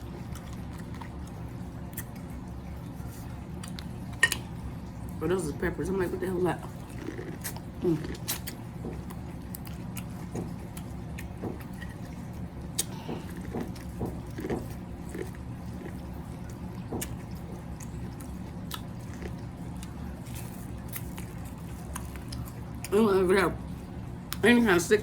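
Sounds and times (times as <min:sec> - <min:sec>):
close-up eating and chewing: 0:00.0 - 0:25.0
steady low hum: 0:00.0 - 0:25.0.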